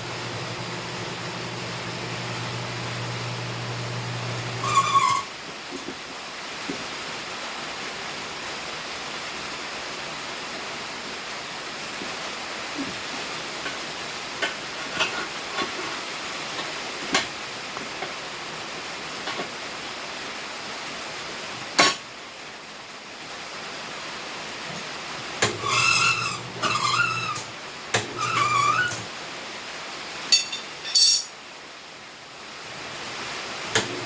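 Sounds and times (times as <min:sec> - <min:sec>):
tire changer hissing: 0:00.0 - 0:05.3, 0:25.4 - 0:29.1.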